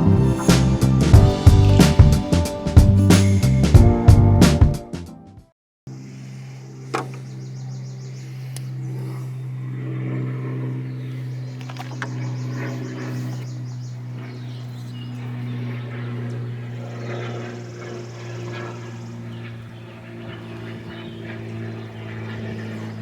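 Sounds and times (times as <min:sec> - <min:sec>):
faint birds chirping: 0:05.9 - 0:23.0
low mechanical hum: 0:05.9 - 0:23.0.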